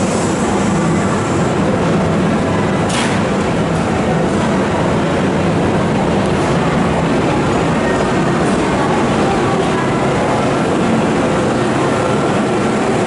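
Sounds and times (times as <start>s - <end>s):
train machinery rumbling: 0.0s - 13.0s.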